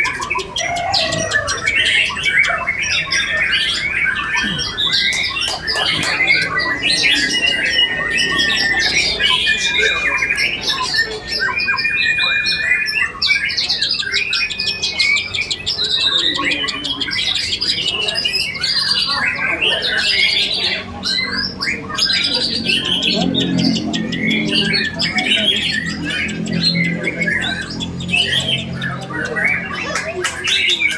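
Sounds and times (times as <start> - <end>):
chorus of caged songbirds: 0.0 - 30.9.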